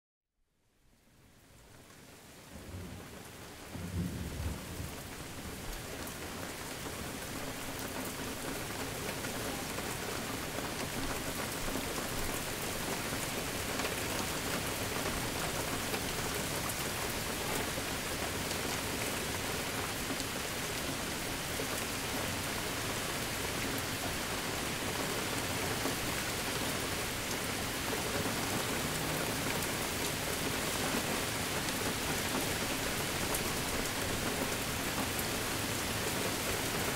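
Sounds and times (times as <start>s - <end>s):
steady rain falling: 0.6s - 36.9s
low rumble of thunder: 2.5s - 6.2s.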